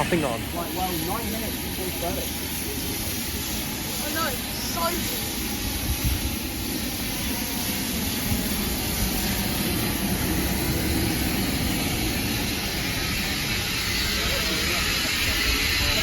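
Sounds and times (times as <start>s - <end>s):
steam locomotive hissing: 0.0s - 16.0s.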